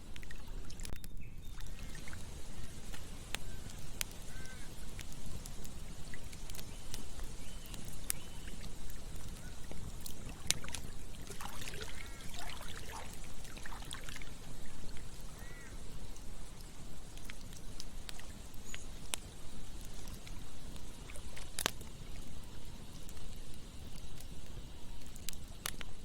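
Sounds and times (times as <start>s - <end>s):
campfire crackling and popping: 0.0s - 26.0s
water gurgling: 8.4s - 15.6s
stream rushing: 10.2s - 14.6s.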